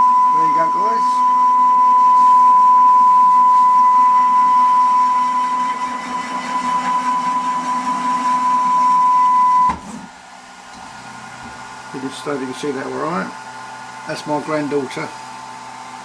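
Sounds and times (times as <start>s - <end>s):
spindle motor whine: 0.0s - 10.1s.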